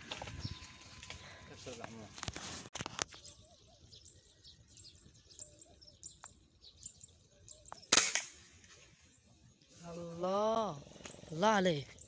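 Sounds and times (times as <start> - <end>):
rustling: 0.0 - 3.2
small birds chirping: 0.0 - 12.0.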